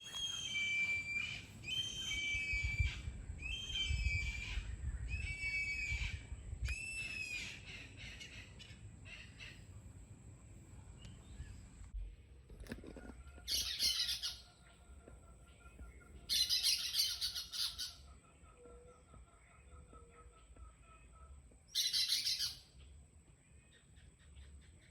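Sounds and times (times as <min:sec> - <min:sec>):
bird squawking: 0:13.4 - 0:14.6, 0:16.3 - 0:18.1, 0:21.8 - 0:22.7.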